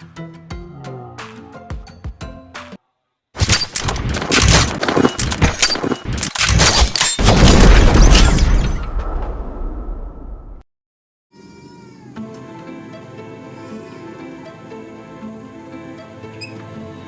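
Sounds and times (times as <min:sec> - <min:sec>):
rapid gunfire: 0:03.4 - 0:08.1.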